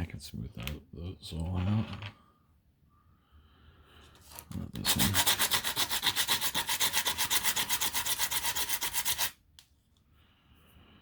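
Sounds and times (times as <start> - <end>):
sandpaper rubbing on plastic: 4.8 - 9.4.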